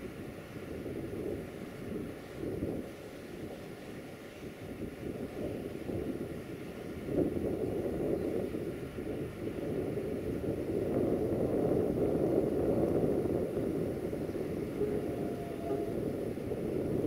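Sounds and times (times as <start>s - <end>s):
distant train rumble: 13.0s - 17.0s.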